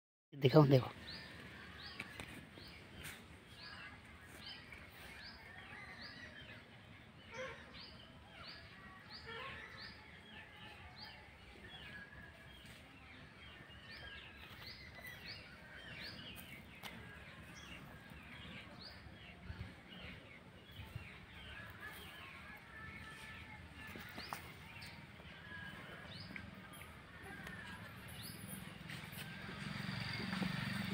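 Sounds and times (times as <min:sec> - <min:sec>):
birds chirping: 0:00.4 - 0:30.9.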